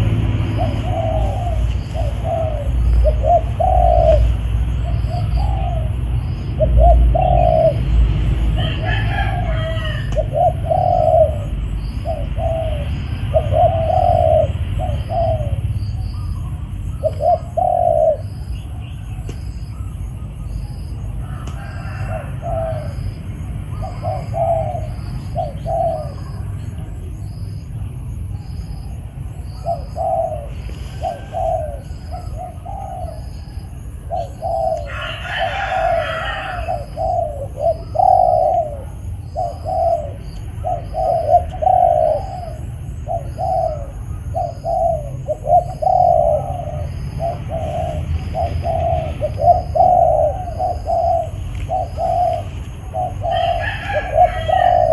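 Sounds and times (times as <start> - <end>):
doves cooing: 0.0 - 54.9.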